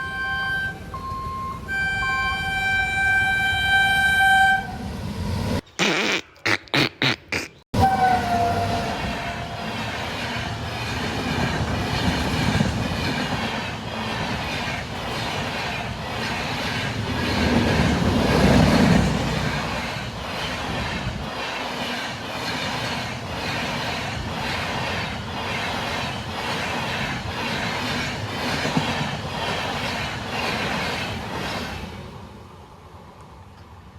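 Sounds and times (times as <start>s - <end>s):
train wheels clacking over rail joints: 8.8s - 32.0s.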